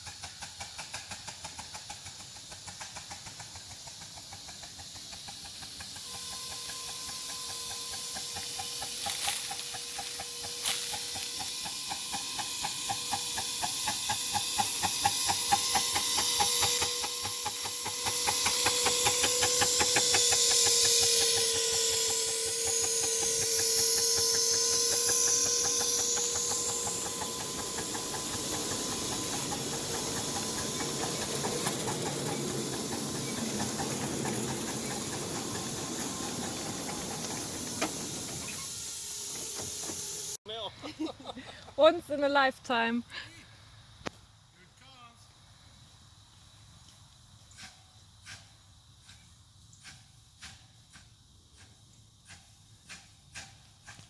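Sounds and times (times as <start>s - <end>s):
steam hissing: 0.0s - 40.4s
steam locomotive chuffing: 0.0s - 40.6s, 47.5s - 54.0s.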